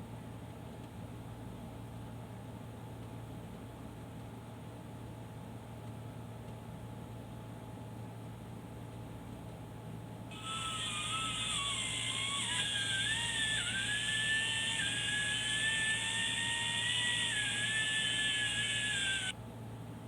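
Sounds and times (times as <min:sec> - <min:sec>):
electric angle grinder whining: 0:10.3 - 0:19.3.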